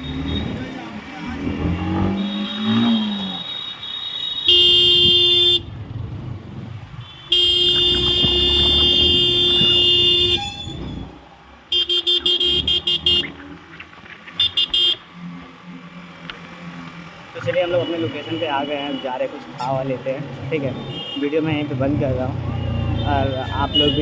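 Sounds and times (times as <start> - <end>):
vehicle horn blasts: 1.6 - 5.7, 7.0 - 10.8, 11.7 - 13.3, 14.4 - 15.0, 23.0 - 24.0.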